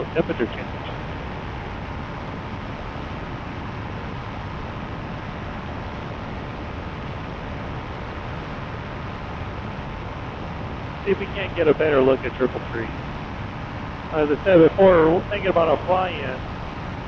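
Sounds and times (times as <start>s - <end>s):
paraglider engine drone: 0.0s - 17.0s
wind rush over microphone: 0.0s - 17.0s.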